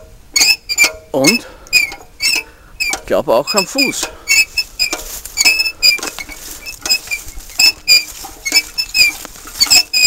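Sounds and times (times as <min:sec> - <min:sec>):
short high-pitched squeaks: 0:00.0 - 0:10.0.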